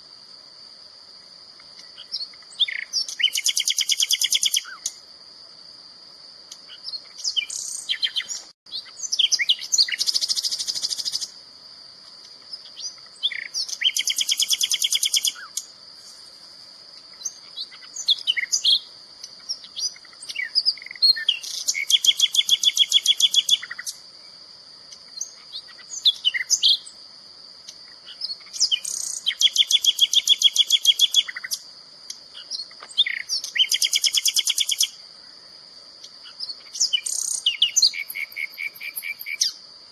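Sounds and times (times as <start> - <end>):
songbird trills: 1.6 - 5.0, 6.5 - 11.4, 12.2 - 16.2, 17.0 - 27.0, 27.6 - 39.6
bird chirps: 1.8 - 5.0, 6.5 - 11.4, 12.5 - 15.7, 17.2 - 24.0, 24.9 - 27.0, 27.7 - 31.6, 32.3 - 35.0, 36.2 - 39.6.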